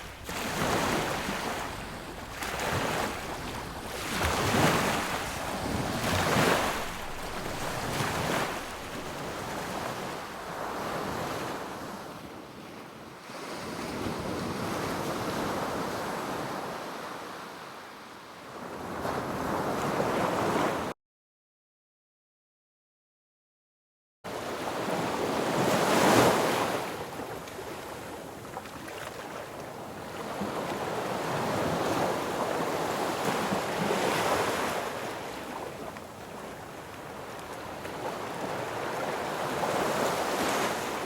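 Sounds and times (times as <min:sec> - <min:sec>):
sea waves breaking on beach: 0:00.0 - 0:12.2, 0:24.4 - 0:41.0.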